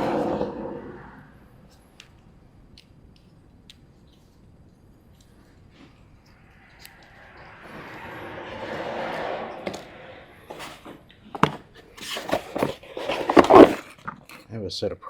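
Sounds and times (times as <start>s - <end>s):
objects rustling: 4.0s - 14.4s
objects knocking and clattering: 9.3s - 14.4s.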